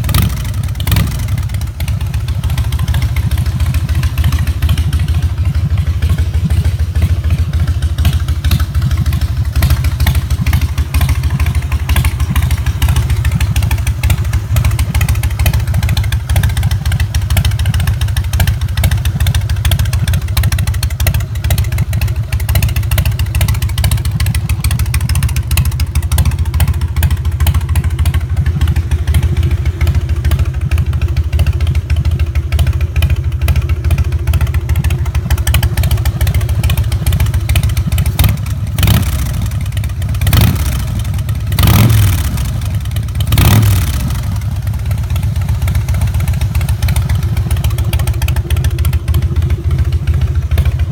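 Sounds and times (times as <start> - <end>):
motorcycle engine idling: 0.0 - 50.9.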